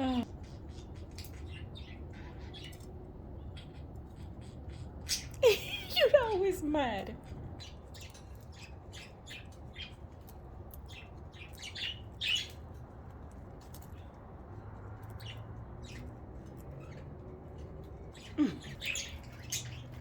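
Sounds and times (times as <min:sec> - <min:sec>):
budgerigars chirping: 0:00.0 - 0:05.4, 0:10.9 - 0:12.7, 0:15.2 - 0:16.2, 0:18.1 - 0:20.0.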